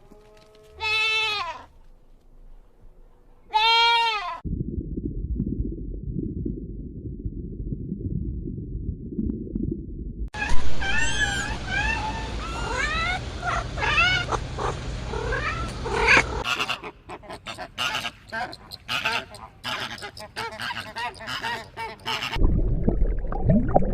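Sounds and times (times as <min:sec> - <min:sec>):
muffled low sound: 0:04.4 - 0:10.3
animals squealing: 0:10.8 - 0:22.4.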